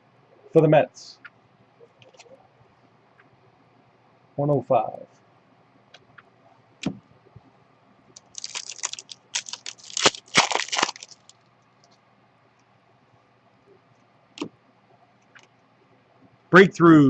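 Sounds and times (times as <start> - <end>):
wrapper click: 8.2 - 11.3
wrapper tearing and crinkling: 8.2 - 11.4.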